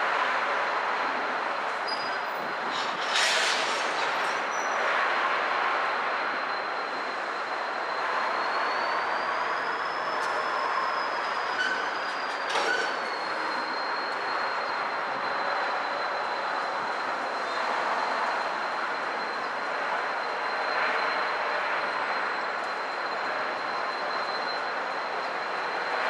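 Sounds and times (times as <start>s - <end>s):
high wheel squeal: 1.5s - 5.2s, 5.8s - 26.0s
metallic clanks from train cars: 11.5s - 13.2s.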